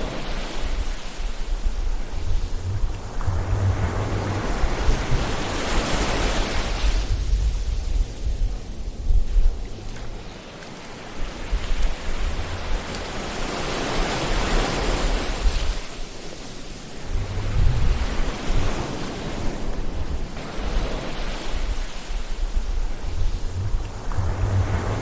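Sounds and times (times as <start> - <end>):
ocean waves washing onto shore: 0.0 - 25.0.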